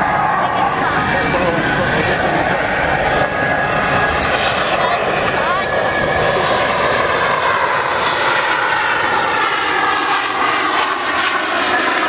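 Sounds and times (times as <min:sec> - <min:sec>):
jet engines in flight: 0:00.0 - 0:12.0.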